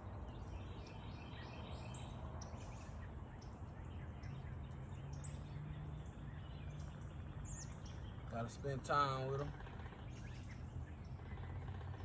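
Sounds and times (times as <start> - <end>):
birds chirping: 0.0 - 12.0
low outdoor rumble: 5.4 - 12.0.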